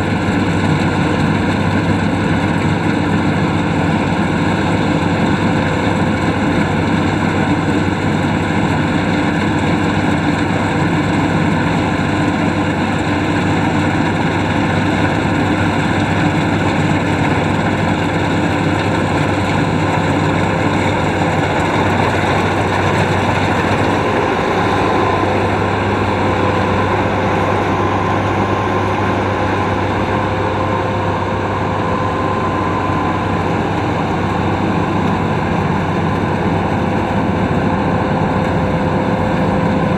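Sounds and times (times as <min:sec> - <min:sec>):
combine harvester engine running: 0:00.0 - 0:39.9
faint steady whine: 0:10.6 - 0:39.9.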